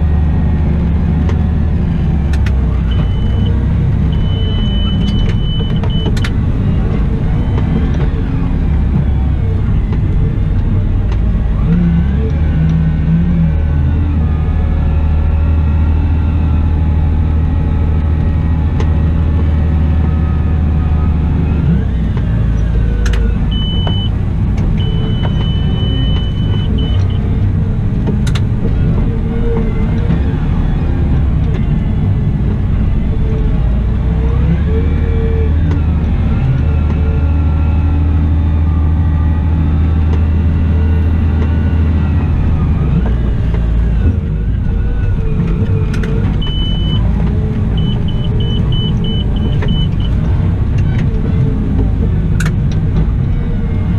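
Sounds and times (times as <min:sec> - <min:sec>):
wheel loader engine hum with whine: 0:00.0 - 0:53.9
high steady beep: 0:04.1 - 0:06.2, 0:23.5 - 0:24.1, 0:46.4 - 0:47.0, 0:47.8 - 0:50.2.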